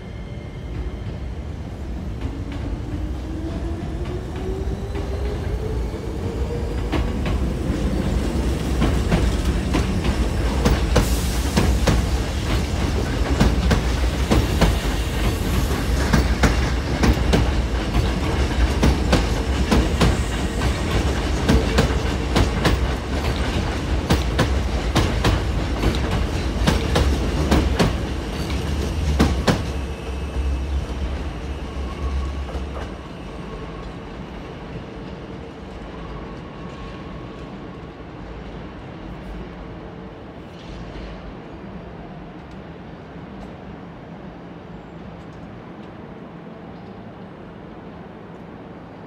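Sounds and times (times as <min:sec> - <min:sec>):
train rumble: 0:00.0 - 0:49.0
train wheels clacking: 0:06.8 - 0:33.1.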